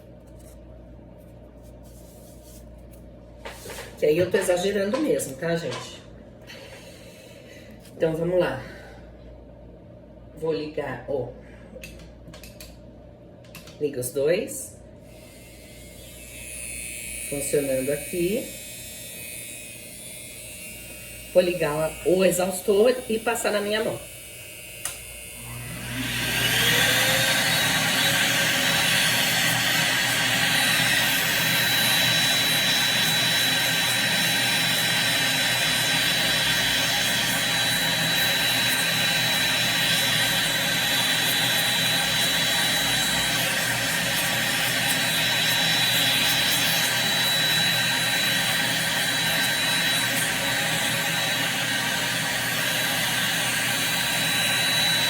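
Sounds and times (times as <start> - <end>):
extraction fan high whine: 14.2 - 55.0.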